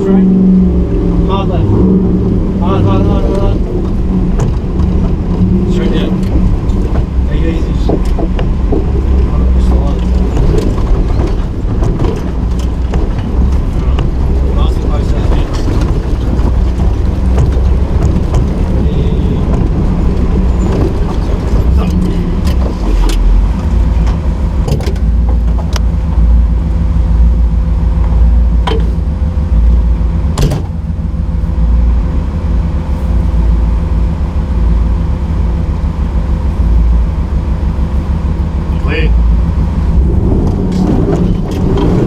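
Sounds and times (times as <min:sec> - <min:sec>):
truck engine running under load: 0:00.0 - 0:42.0
sharp knocks and bangs: 0:01.6 - 0:26.6, 0:28.0 - 0:31.3.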